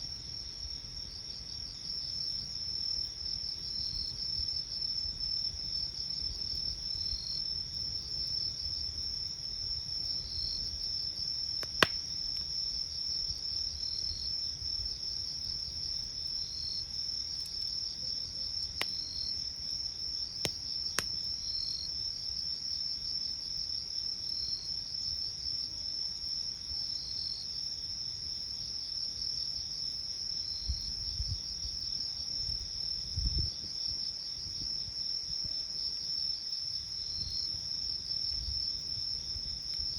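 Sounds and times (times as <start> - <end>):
crickets trilling: 0.0 - 39.9
insect chirping: 0.0 - 39.9
campfire crackling and popping: 9.9 - 13.8, 16.3 - 17.8, 18.6 - 19.4, 20.3 - 21.4.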